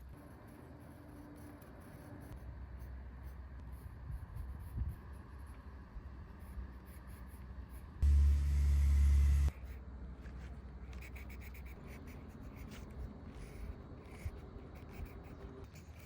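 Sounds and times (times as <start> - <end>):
low hum: 8.0 - 9.8.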